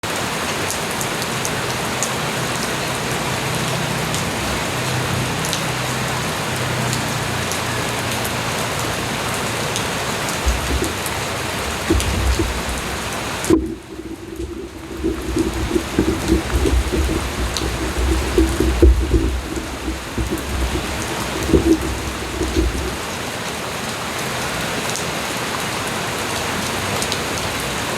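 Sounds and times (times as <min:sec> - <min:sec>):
light rain falling: 0:00.0 - 0:27.9
raindrops ticking on surfaces: 0:00.0 - 0:27.9
low rumble: 0:10.4 - 0:23.1.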